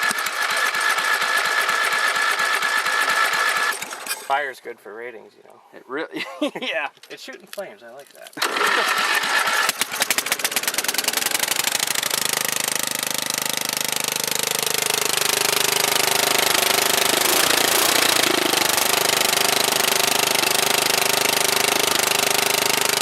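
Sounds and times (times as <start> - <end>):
lawn tractor engine running: 0.0 - 4.3, 8.4 - 23.0.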